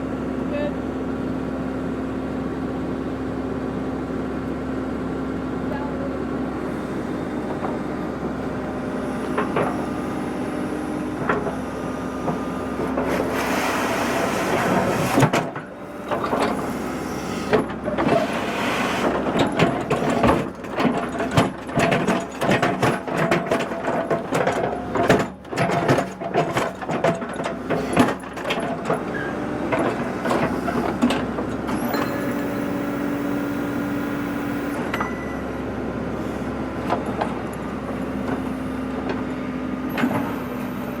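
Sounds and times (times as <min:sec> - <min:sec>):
earth-moving machine engine: 0:00.0 - 0:41.0
knocks and clanks on gravel: 0:19.1 - 0:31.8.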